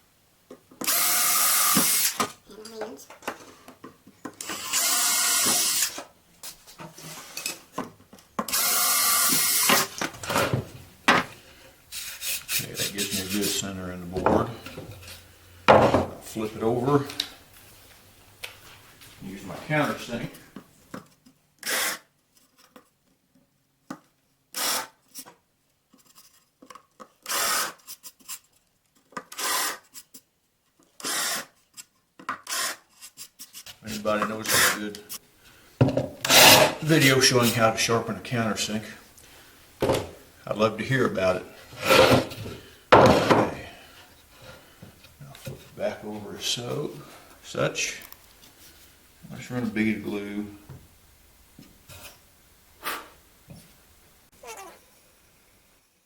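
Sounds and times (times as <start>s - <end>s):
power drill boring through wood: 0.8s - 2.2s, 4.4s - 6.0s, 8.5s - 9.9s, 31.0s - 31.5s
knocks of wood and drill: 0.8s - 2.4s, 4.4s - 6.1s, 41.9s - 43.6s
countersink bit scraping wood: 31.0s - 31.5s.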